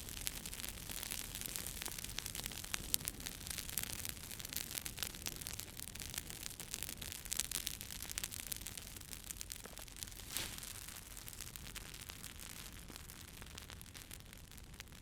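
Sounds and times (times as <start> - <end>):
campfire crackling and popping: 0.0 - 15.0
fire hiss: 10.0 - 11.5.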